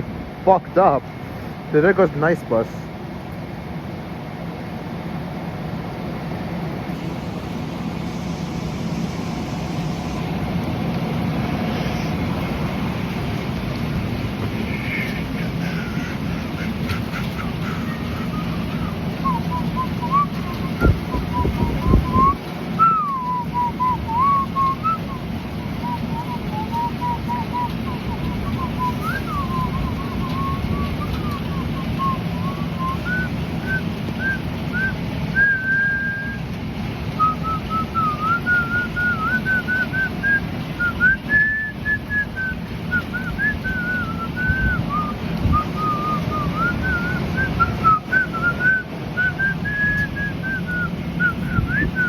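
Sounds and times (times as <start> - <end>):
heavy rain: 0.0 - 52.0
person whistling a tune: 17.4 - 36.4, 37.2 - 52.0.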